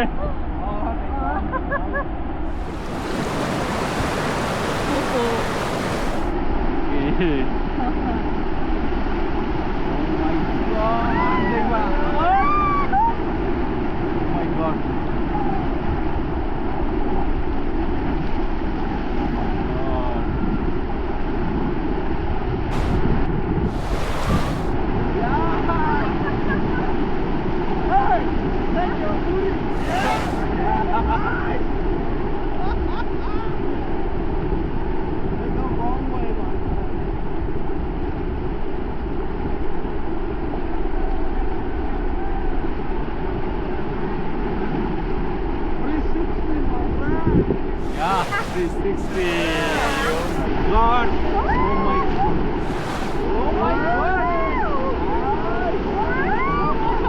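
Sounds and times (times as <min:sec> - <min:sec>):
rushing river water: 0:02.5 - 0:06.4, 0:22.7 - 0:24.8, 0:29.7 - 0:30.5, 0:47.8 - 0:54.5
wind buffeting microphone: 0:02.5 - 0:06.4, 0:22.3 - 0:26.8
sharp hiss: 0:22.7 - 0:23.1, 0:23.7 - 0:24.8, 0:29.8 - 0:30.5, 0:47.8 - 0:50.5, 0:52.6 - 0:53.3.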